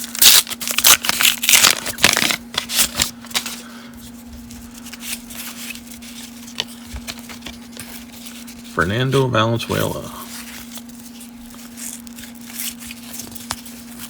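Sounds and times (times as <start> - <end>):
wrapper crinkling and tearing: 0.0 - 3.6, 9.7 - 14.0
cards rustling: 0.0 - 14.0.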